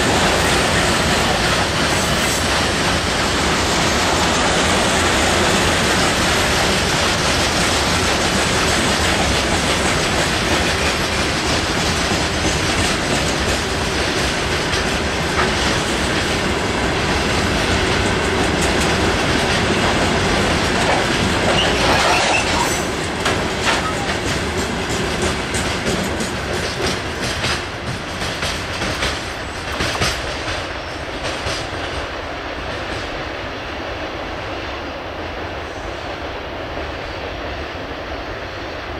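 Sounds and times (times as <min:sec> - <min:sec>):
train wheels clattering over rails: 0:00.0 - 0:34.6
train wheel squeal: 0:20.9 - 0:23.0, 0:23.6 - 0:24.4.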